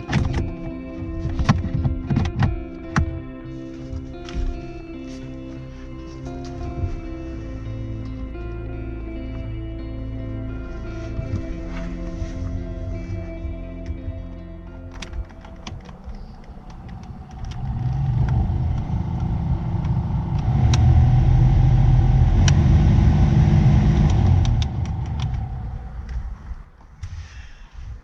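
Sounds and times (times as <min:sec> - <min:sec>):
heater blower fan running: 0:15.3 - 0:26.4.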